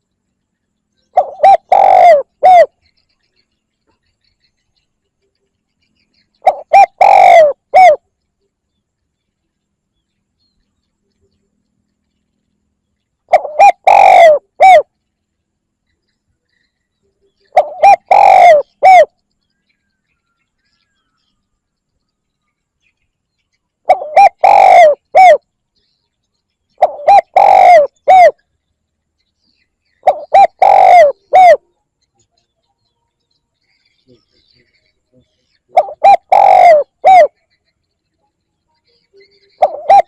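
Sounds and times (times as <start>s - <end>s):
dove cooing: 1.1s - 2.8s, 6.4s - 8.0s, 13.3s - 14.9s, 17.5s - 19.2s, 23.8s - 25.4s, 26.8s - 28.4s, 30.0s - 31.7s, 35.1s - 37.4s, 39.2s - 40.0s.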